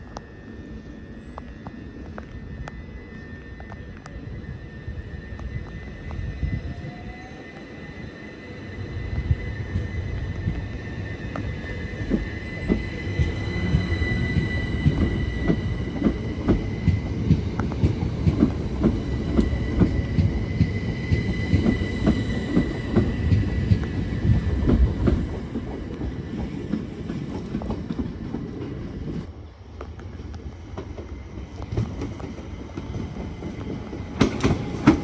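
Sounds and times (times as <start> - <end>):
train rumble: 0.0 - 35.0
train wheels clicking over rail joints: 10.4 - 29.3, 30.7 - 35.0.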